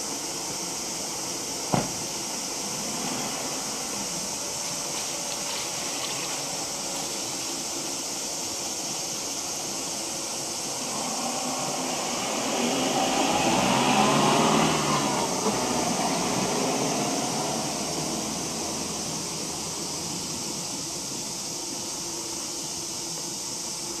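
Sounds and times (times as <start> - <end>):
outdoor background noise: 0.0 - 24.0
vehicle passing: 10.8 - 20.4.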